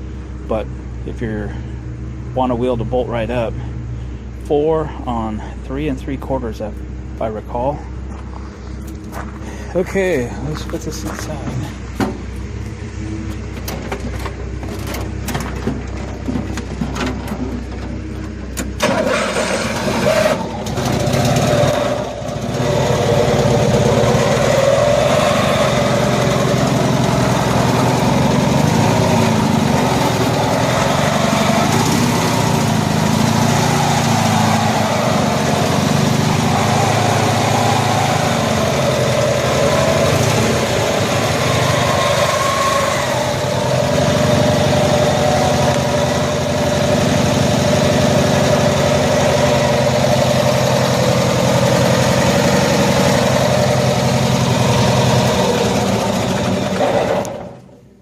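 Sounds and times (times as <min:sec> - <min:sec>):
low engine hum: 0:00.0 - 0:58.0
small engine starting and idling: 0:18.5 - 0:33.6, 0:37.4 - 0:58.0.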